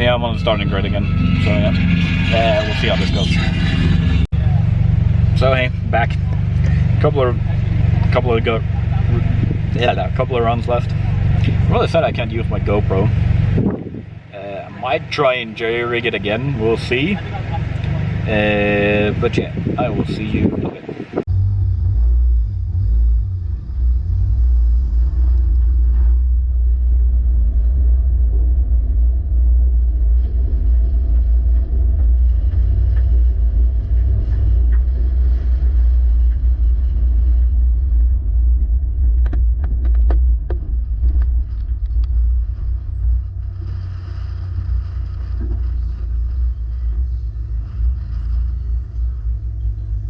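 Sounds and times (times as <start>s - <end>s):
car engine deep rumble: 0.0s - 50.0s
sharp clicks and knocks: 39.0s - 42.2s.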